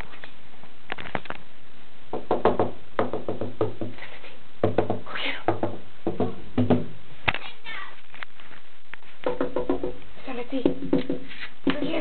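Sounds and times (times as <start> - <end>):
sharp knocks on wood: 2.1 - 4.0, 4.6 - 6.9, 9.2 - 10.0, 10.6 - 12.0.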